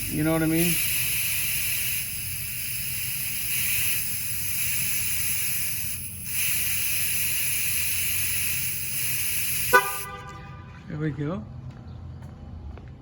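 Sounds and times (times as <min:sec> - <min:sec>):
air hissing from tire valve: 0:00.0 - 0:10.6.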